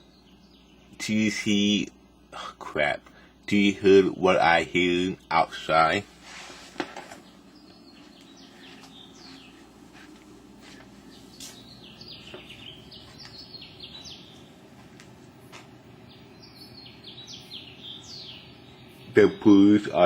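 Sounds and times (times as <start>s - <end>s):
birds chirping and whistling: 0.0s - 1.5s, 7.0s - 14.7s, 15.4s - 20.0s.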